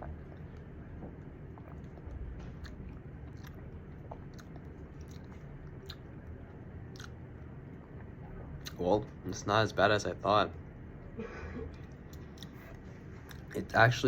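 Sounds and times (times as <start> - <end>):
chewing mouth sounds: 0.0 - 7.2, 11.8 - 13.6.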